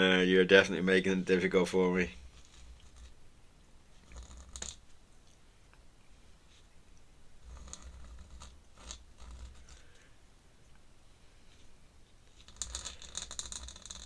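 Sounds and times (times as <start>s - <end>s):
pen scratching on paper: 7.4s - 10.0s.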